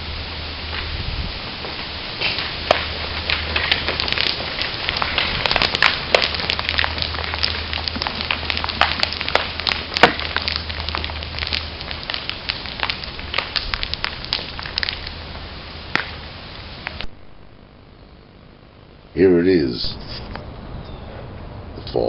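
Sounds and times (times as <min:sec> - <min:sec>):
steady low hum: 0:00.0 - 0:22.0
acorns falling and knocking: 0:02.2 - 0:15.1.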